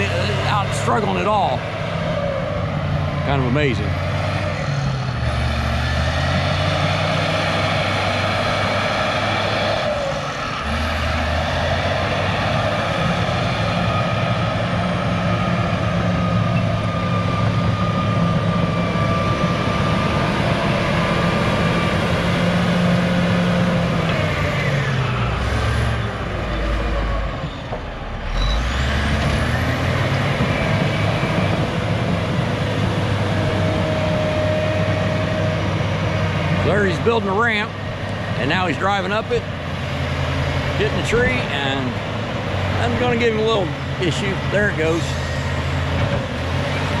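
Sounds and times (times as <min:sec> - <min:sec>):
bulldozer diesel engine under load: 0:00.0 - 0:47.0
tracks squealing: 0:23.9 - 0:35.5.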